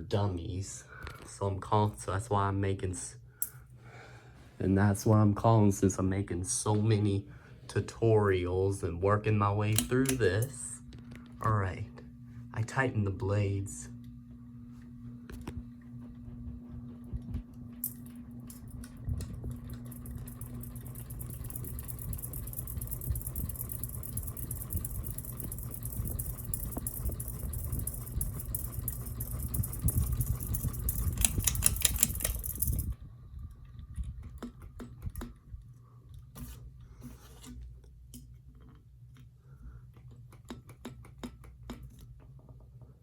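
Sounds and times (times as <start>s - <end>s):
ceiling fan rattling and ticking: 15.3s - 36.3s.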